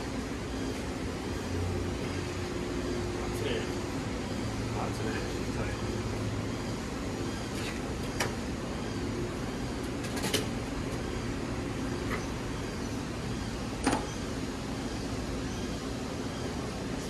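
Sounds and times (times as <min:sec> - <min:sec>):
workshop hum: 0:00.0 - 0:17.0.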